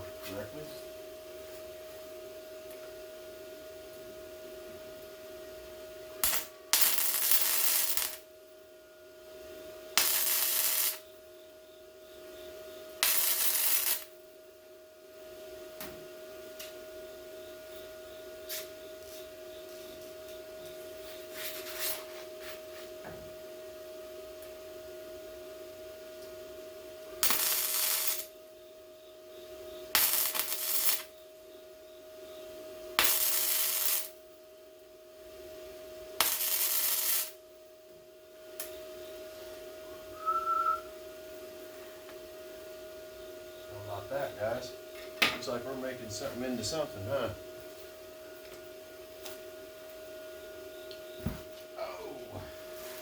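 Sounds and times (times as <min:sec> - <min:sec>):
steady hum: 0:00.0 - 0:53.0
welder hum: 0:06.2 - 0:08.3, 0:10.0 - 0:11.2, 0:13.0 - 0:14.2, 0:27.2 - 0:28.3, 0:29.9 - 0:31.2, 0:33.0 - 0:34.2, 0:36.2 - 0:37.4
welding arc crackle: 0:06.2 - 0:08.3, 0:10.0 - 0:11.1, 0:13.0 - 0:14.2, 0:27.2 - 0:28.4, 0:29.9 - 0:31.2, 0:33.0 - 0:34.2, 0:36.2 - 0:37.4.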